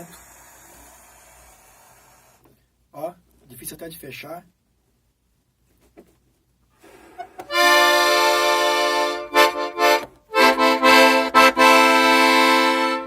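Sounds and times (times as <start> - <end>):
accordion playing chords: 6.9 - 13.0.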